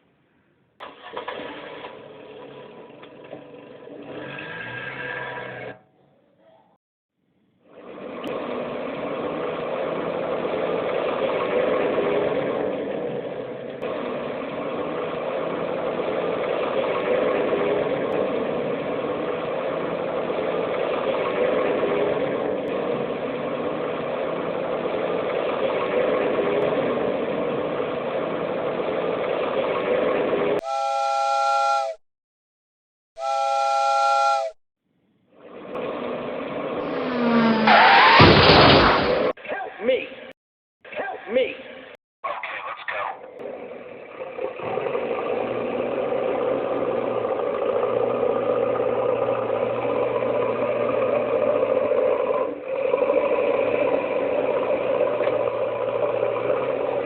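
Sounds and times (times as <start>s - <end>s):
train whistle blasts: 30.6s - 32.0s, 33.2s - 34.6s.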